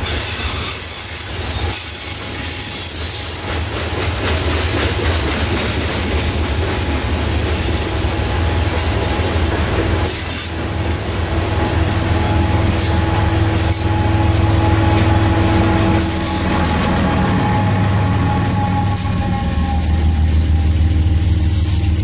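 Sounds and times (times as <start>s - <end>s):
train wheels squealing: 0.0s - 4.9s, 7.5s - 8.0s, 10.0s - 10.9s, 12.2s - 14.4s, 17.4s - 21.9s
train rumbling past: 0.0s - 22.0s.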